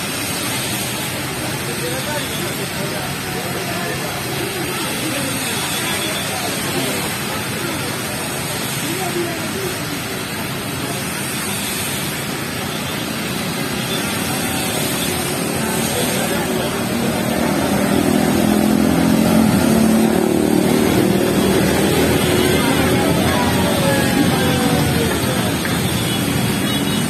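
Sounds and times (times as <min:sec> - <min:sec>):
heavy rain hissing: 0:00.0 - 0:27.0
vehicle engine passing: 0:14.2 - 0:26.6.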